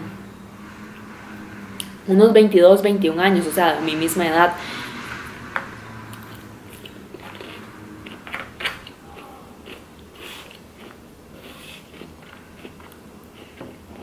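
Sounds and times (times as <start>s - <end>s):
person chewing and crunching food: 6.1s - 14.0s.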